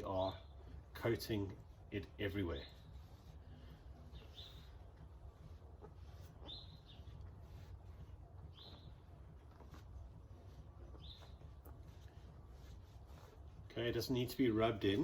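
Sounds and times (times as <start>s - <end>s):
low steady hum: 0.0s - 15.0s
bird chirping faintly: 2.6s - 13.9s.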